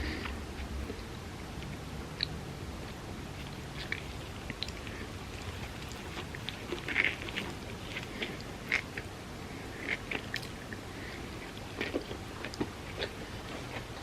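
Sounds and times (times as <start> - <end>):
person chewing crispy food: 0.0 - 14.0.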